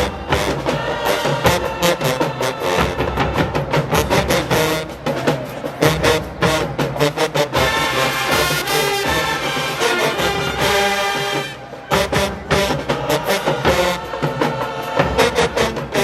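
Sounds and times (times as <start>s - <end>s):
brass chords: 0.0s - 16.0s
marching band playing: 0.0s - 16.0s.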